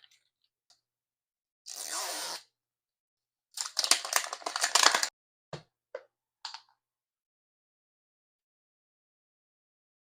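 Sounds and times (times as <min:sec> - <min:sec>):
plastic wrapper crinkling and tearing: 0:03.6 - 0:05.1.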